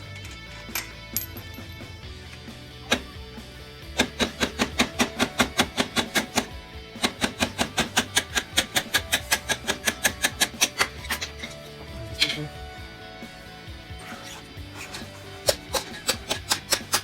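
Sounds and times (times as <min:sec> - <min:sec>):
background music: 0:00.0 - 0:17.0
hand tool clicking on metal: 0:04.0 - 0:11.6, 0:14.8 - 0:17.0.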